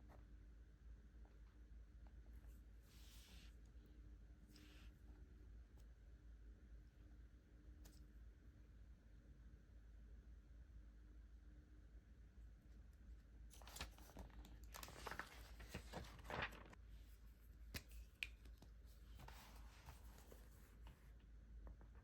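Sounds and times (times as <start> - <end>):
paper rustling and tearing: 13.5 - 16.8.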